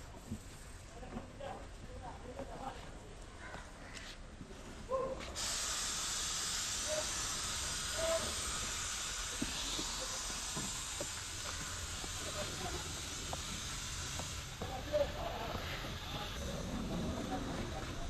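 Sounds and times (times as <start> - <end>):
high-pressure spray hissing: 5.4 - 17.9.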